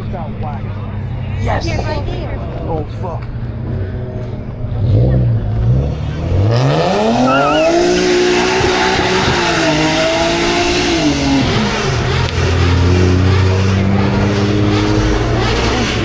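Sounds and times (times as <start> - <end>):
car engine revving: 2.5 - 16.0
tyre squeal: 7.2 - 9.6.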